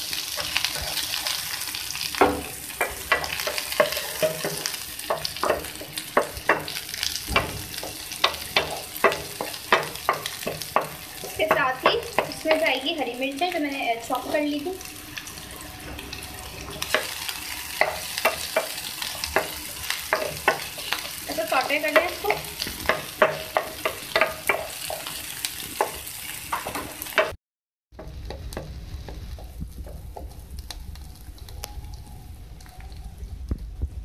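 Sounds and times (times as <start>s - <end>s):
onions sizzling in oil: 0.0s - 27.4s, 28.0s - 33.4s
wooden spatula scraping a pan: 0.2s - 1.6s, 2.2s - 12.7s.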